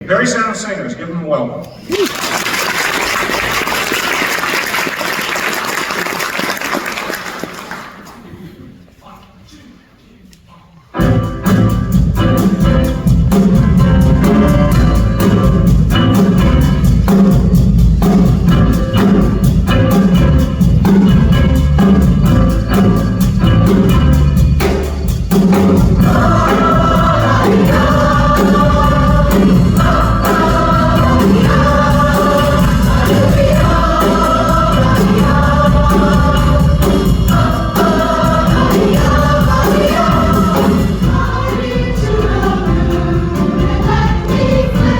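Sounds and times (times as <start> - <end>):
drum kit beat: 11.0 - 44.9
women's chorus singing: 25.8 - 44.9.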